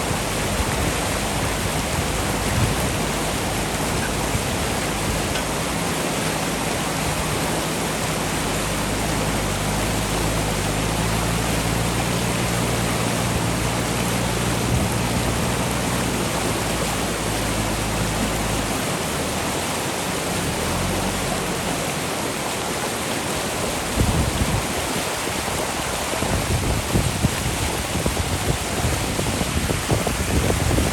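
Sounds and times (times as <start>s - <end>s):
low rumbles: 0.0s - 19.6s
diesel engine running: 0.0s - 22.5s
river rushing: 0.0s - 30.9s.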